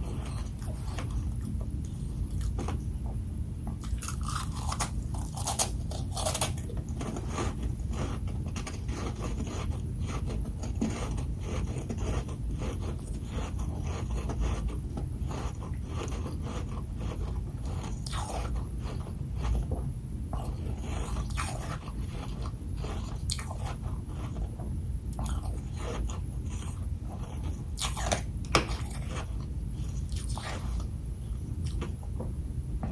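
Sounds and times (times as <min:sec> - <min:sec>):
chewing and crunching frost: 0:00.0 - 0:03.0, 0:03.8 - 0:32.0.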